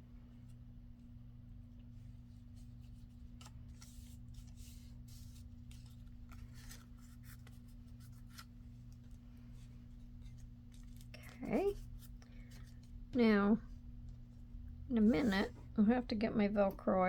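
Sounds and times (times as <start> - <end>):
paper rubbing and rustling: 2.1 - 13.0.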